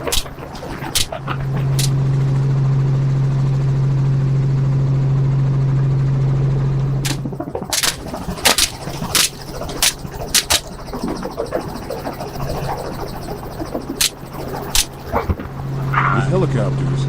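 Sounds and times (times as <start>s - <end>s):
helicopter engine and rotors droning: 0.0s - 17.0s
sharp gunshots: 7.1s - 10.6s.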